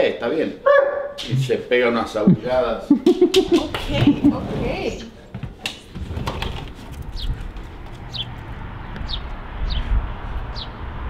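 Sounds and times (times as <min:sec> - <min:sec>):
bird chirping: 0:08.1 - 0:08.4, 0:09.0 - 0:09.9, 0:10.5 - 0:10.8.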